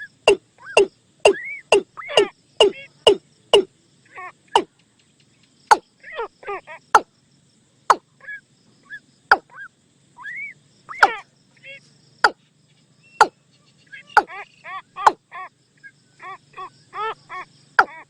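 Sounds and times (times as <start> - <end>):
sharp knocking bird calls: 0.0 - 3.7, 4.5 - 5.9, 6.9 - 7.1, 9.3 - 9.6, 10.9 - 11.2, 12.2 - 12.4, 13.1 - 15.4, 17.8 - 18.0
short falling tonal calls: 0.0 - 3.7.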